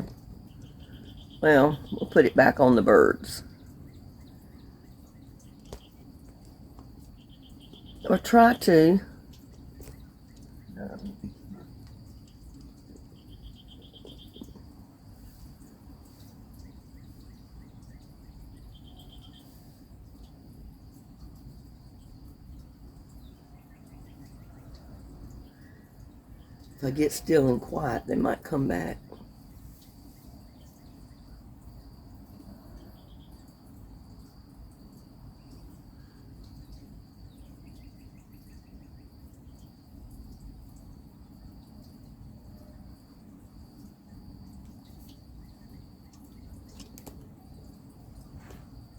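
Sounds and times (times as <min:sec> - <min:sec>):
insect trilling: 0:00.0 - 0:19.6
crickets droning: 0:00.0 - 0:48.9
low outdoor rumble: 0:00.0 - 0:48.9
rapid pulsed insect trills: 0:00.0 - 0:48.9.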